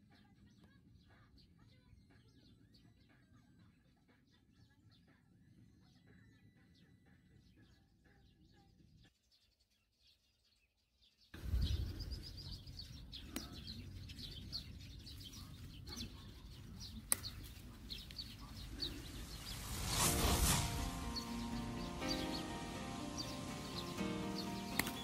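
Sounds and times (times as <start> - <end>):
small birds chirping: 0.0 - 25.0
low rumbling noise: 18.4 - 24.7
sharp clicks: 24.6 - 25.0.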